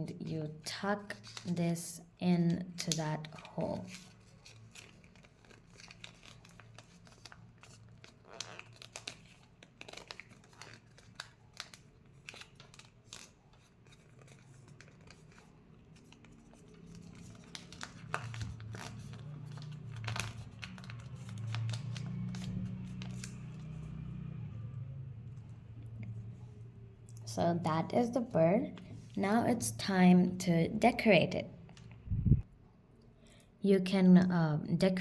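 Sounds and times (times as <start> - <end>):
paper rustling and crinkling: 0.7 - 1.8, 2.7 - 24.0
low hum: 31.8 - 32.6.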